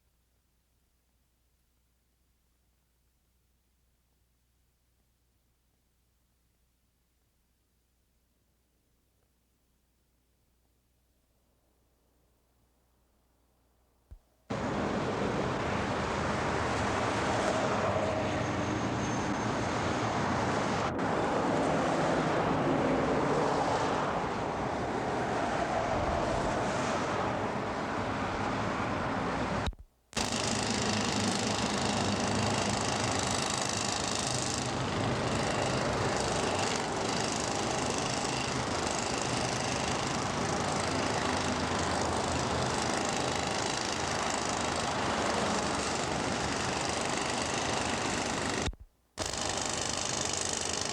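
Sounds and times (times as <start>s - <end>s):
engine and machinery noise: 14.5s - 50.9s.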